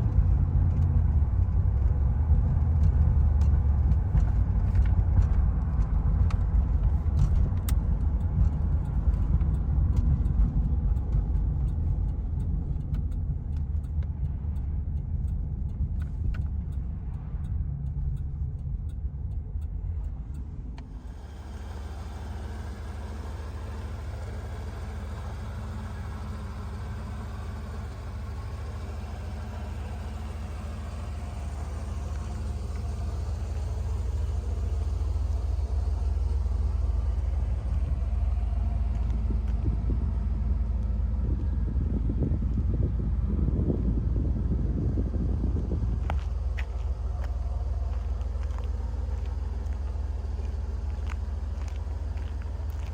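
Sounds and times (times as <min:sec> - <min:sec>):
car engine rumbling: 0:00.0 - 0:52.9.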